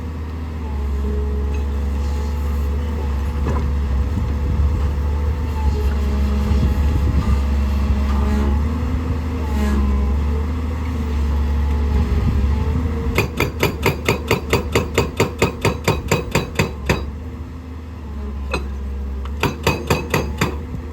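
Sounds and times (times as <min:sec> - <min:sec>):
excavator diesel engine running: 0:00.0 - 0:20.9
hydraulic breaker hammering rock: 0:13.1 - 0:17.2, 0:18.5 - 0:20.9.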